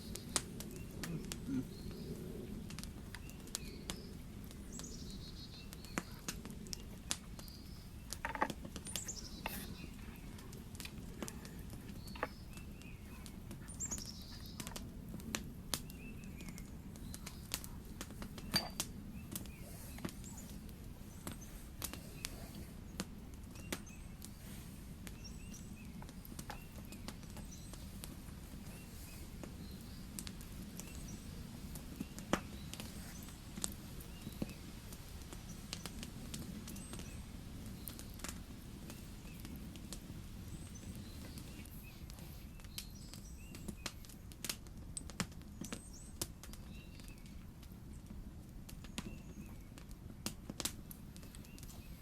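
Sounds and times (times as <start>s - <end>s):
campfire crackling and popping: 0.0s - 52.0s.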